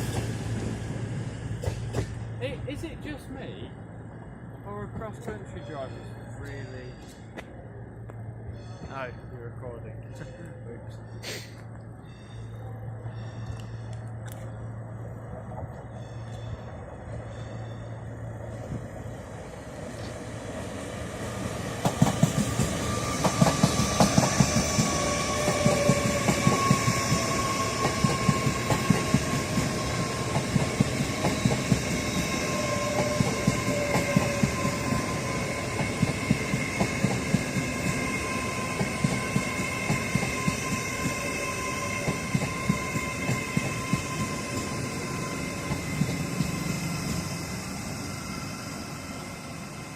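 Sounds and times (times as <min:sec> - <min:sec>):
train wheels clicking over rail joints: 0:01.4 - 0:02.3, 0:21.7 - 0:47.6
high wheel squeal: 0:22.7 - 0:49.7.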